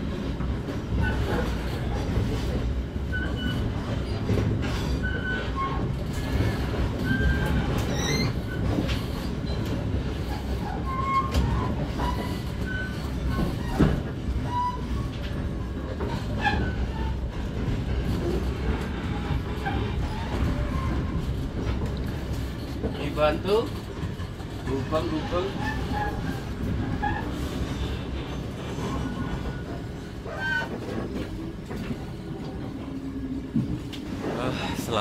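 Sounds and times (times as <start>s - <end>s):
train wheels rumbling on track: 0.0s - 35.0s.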